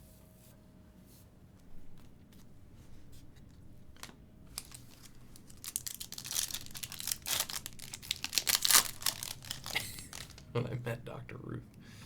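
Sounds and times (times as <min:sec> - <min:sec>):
wrapper tearing and crinkling: 0:04.0 - 0:10.5.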